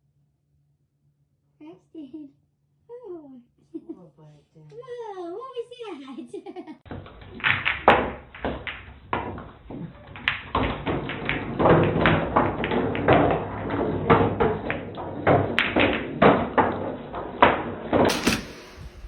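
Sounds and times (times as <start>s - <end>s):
irregular taps and thuds: 6.9s - 19.0s.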